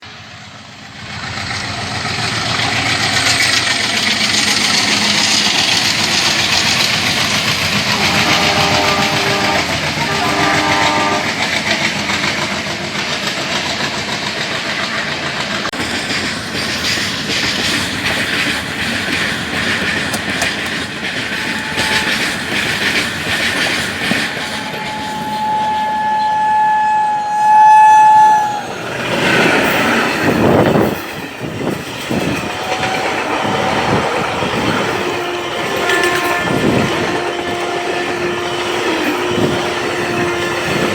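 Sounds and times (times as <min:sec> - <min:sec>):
train wheels clacking on rails: 0:00.0 - 0:26.1, 0:27.3 - 0:40.9
locomotive horn blasts: 0:07.9 - 0:11.4, 0:21.2 - 0:22.8, 0:24.1 - 0:30.5, 0:32.2 - 0:40.9.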